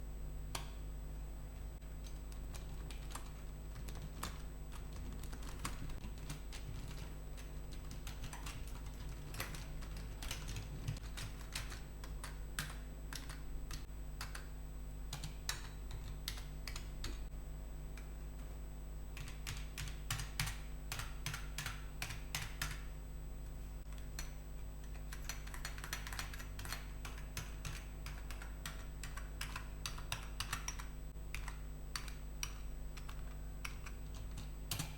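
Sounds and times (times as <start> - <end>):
steady low hum: 0.0 - 34.9
computer keyboard keys clicking: 2.0 - 14.5, 15.1 - 17.2, 19.2 - 22.9, 23.9 - 34.9.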